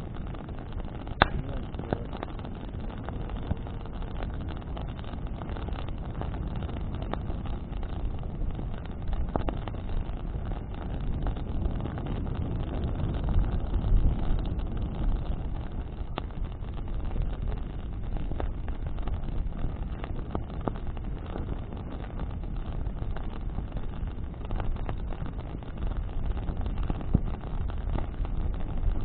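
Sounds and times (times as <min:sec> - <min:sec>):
bonfire flames rumbling: 0:00.0 - 0:29.0
burning wood crackling: 0:00.0 - 0:29.0
wind: 0:00.0 - 0:29.0.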